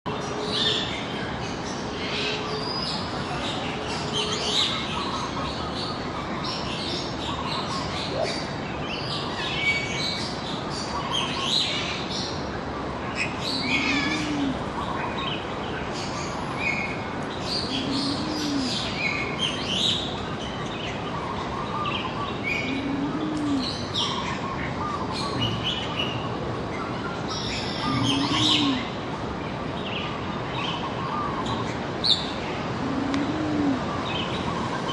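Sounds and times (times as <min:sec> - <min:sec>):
birds chirping: 0:13.3 - 0:16.8, 0:17.4 - 0:29.0.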